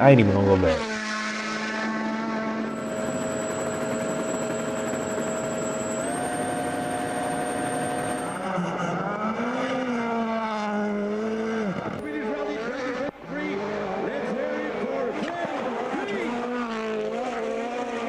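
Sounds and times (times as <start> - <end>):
rally car engine revving: 0.2 - 2.8, 8.4 - 13.8, 15.8 - 18.0.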